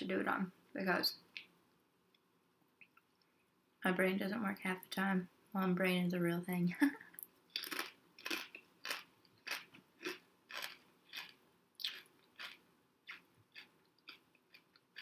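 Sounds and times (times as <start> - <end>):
potato chips crunching: 7.5 - 15.0.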